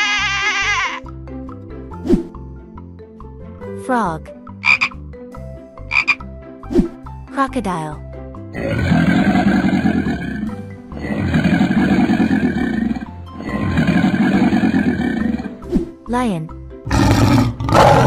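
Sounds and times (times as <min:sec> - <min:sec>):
children's background music: 0:00.6 - 0:18.0
crocodile growls: 0:08.6 - 0:15.6, 0:16.9 - 0:18.0.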